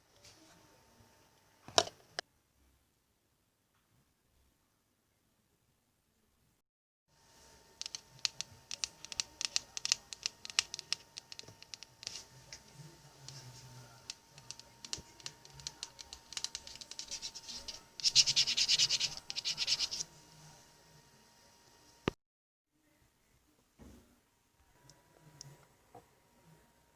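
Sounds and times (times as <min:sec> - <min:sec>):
small clicks and scratching: 0:07.8 - 0:20.0.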